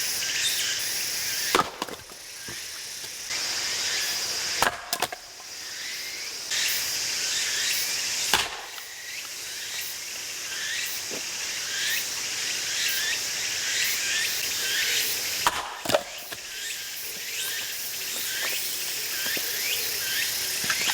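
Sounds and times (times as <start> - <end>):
insects chirping: 0.0 - 20.9
axe splitting firewood: 1.4 - 3.3, 4.6 - 5.2, 8.3 - 8.8, 15.4 - 16.7, 20.6 - 20.9
split wood knocking: 1.5 - 3.2.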